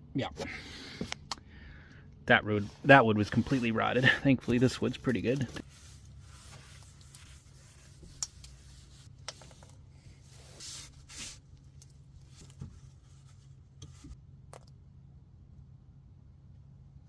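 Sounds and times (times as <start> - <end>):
low steady hum: 0.0 - 17.0
soft rubbing and scraping: 2.3 - 14.2.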